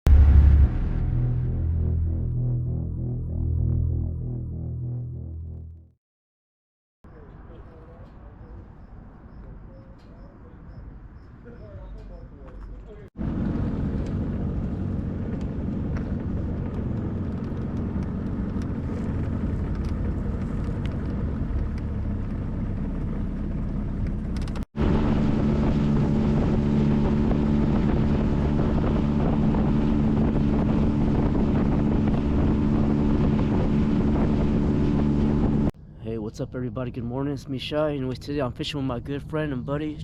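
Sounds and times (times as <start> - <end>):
boat motor running: 13.2 - 35.7
wind on microphone: 24.8 - 35.7.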